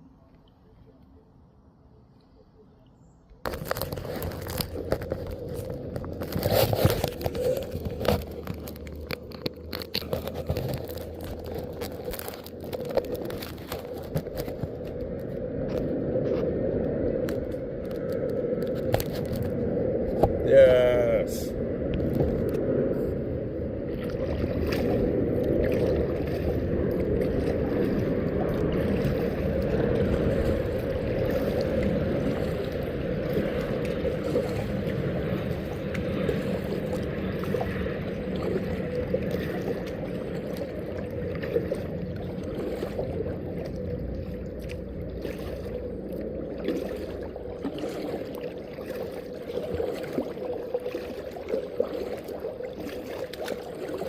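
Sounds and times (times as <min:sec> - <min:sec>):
water rushing around kayak: 0:03.0 - 0:54.0.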